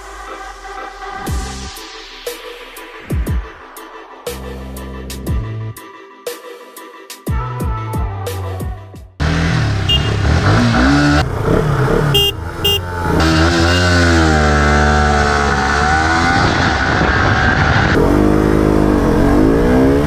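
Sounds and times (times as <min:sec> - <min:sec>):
motorcycle engines revving: 0:09.2 - 0:20.0.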